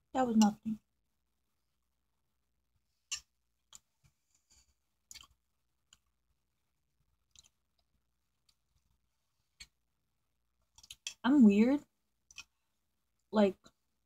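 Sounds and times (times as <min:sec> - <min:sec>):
close-up chewing: 0:05.0 - 0:06.2, 0:07.2 - 0:08.8, 0:10.7 - 0:11.2.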